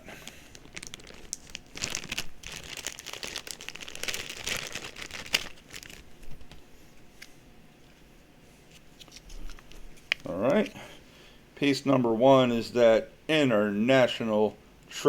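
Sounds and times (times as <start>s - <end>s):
packaging crinkling: 0.1s - 6.7s.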